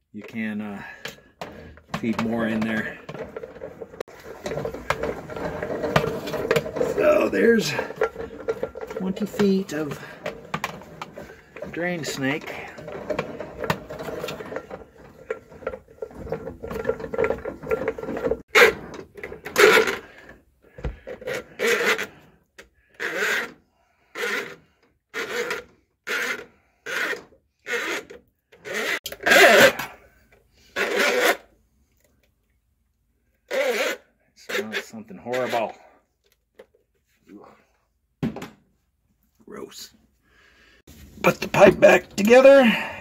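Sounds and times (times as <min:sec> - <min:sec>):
drain snake cable scraping in pipe: 0:01.4 - 0:30.0, 0:30.6 - 0:31.5, 0:33.5 - 0:35.9.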